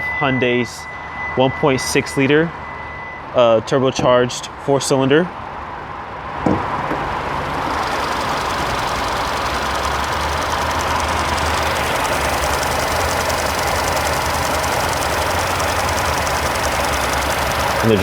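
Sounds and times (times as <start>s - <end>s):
car engine idling: 6.3s - 18.0s
fast even engine ticking: 6.6s - 18.0s.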